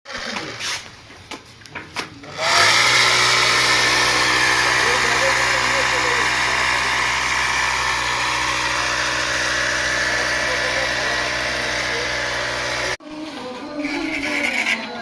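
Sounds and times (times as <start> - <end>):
motor humming: 2.3 - 13.0.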